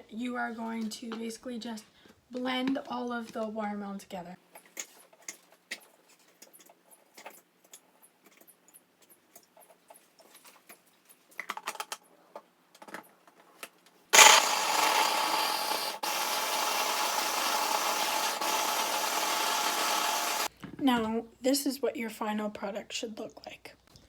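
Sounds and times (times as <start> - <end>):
electric blender running: 14.2 - 20.5.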